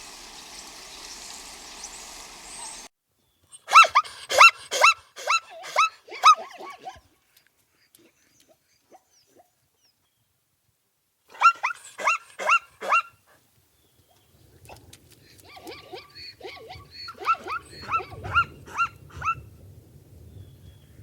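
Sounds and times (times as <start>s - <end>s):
background noise: 0.0s - 21.0s
dog barking high-pitched yelps: 3.6s - 7.1s, 11.3s - 13.2s, 15.5s - 19.4s.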